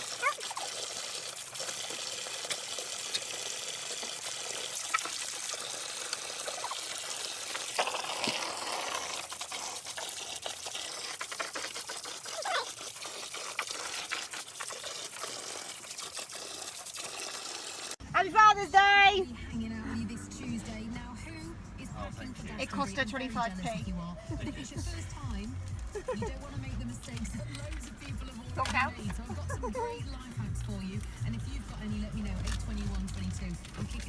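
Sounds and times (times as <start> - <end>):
small splashes and clicks: 0.0 - 18.0, 32.2 - 34.0
water trickling: 0.0 - 18.0.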